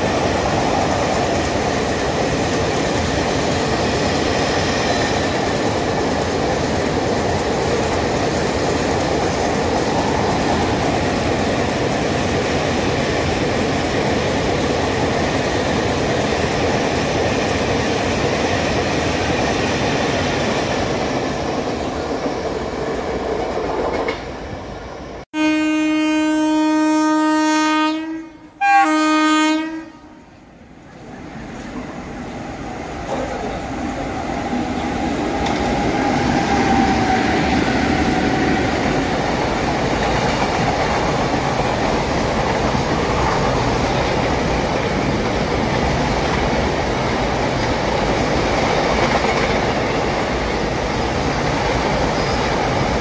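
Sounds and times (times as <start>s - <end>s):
locomotive horn blasts: 25.3s - 30.2s.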